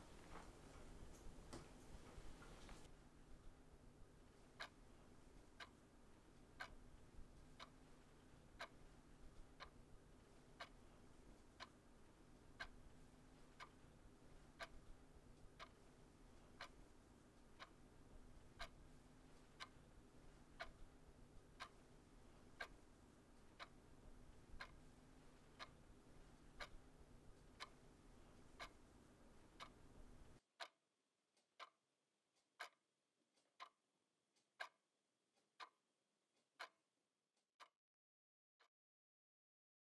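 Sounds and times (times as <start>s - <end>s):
low room hum: 0.0s - 30.4s
clock ticking: 0.1s - 30.8s, 31.4s - 31.8s, 32.4s - 35.9s, 36.6s - 36.8s.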